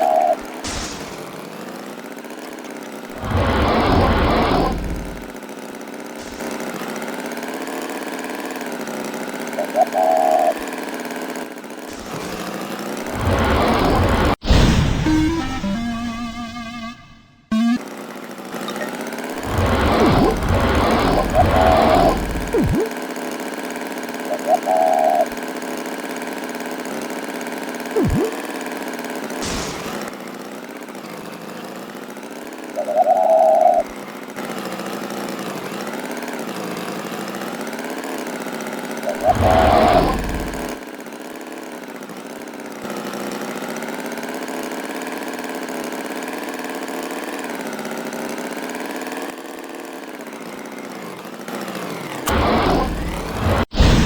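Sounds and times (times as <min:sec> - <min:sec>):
engine idling: 0:00.0 - 0:53.6
falling-then-rising glide: 0:03.1 - 0:05.3, 0:11.9 - 0:17.8, 0:19.3 - 0:22.9, 0:39.2 - 0:40.8, 0:52.2 - 0:54.0
loud sound: 0:13.1 - 0:17.8.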